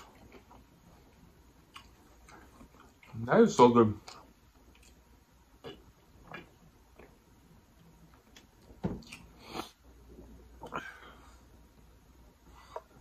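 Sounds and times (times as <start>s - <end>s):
person chewing: 1.6s - 3.2s, 4.0s - 7.2s, 8.2s - 9.8s.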